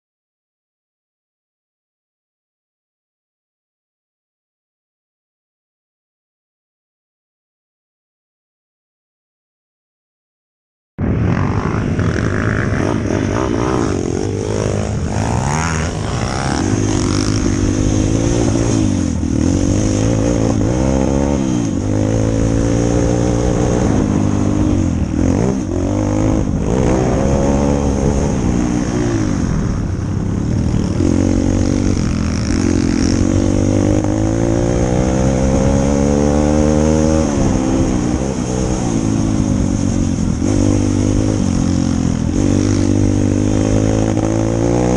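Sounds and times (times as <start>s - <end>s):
motorbike engine revving: 11.1s - 44.9s.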